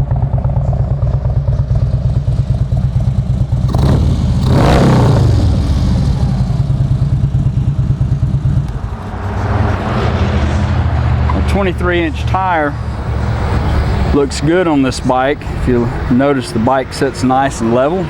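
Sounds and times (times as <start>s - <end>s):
motorcycle engine idling and revving: 0.0s - 18.0s.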